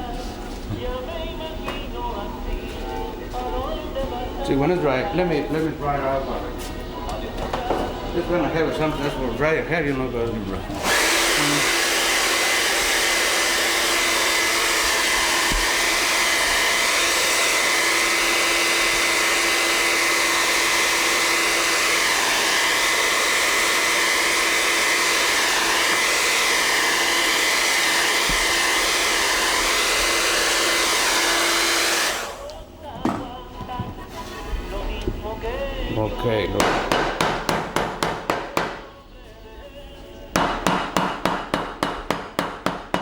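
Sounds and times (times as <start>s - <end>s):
hair dryer blowing: 10.2s - 32.6s.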